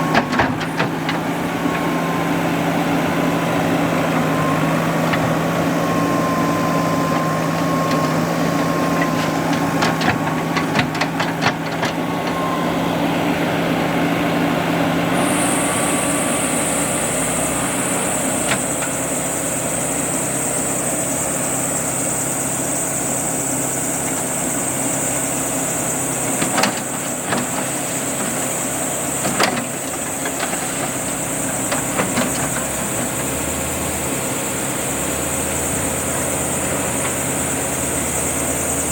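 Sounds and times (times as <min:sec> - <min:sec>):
diesel engine idling: 0:00.0 - 0:38.9
knocks and clanks: 0:07.6 - 0:12.4
high steady hiss: 0:15.1 - 0:29.2.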